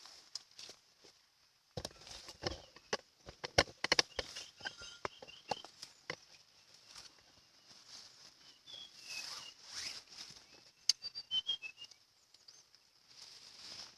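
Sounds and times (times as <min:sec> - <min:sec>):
soft rustles: 0:05.6 - 0:10.8, 0:13.0 - 0:13.9
bird whistling notes: 0:08.4 - 0:10.0, 0:10.8 - 0:12.0.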